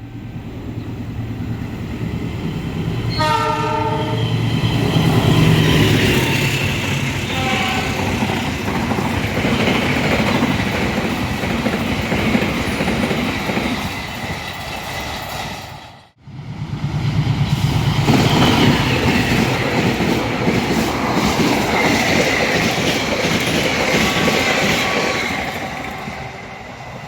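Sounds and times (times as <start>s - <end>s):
train wheels rumbling on track: 0.0s - 27.0s
train horn: 3.1s - 4.4s, 7.2s - 8.5s.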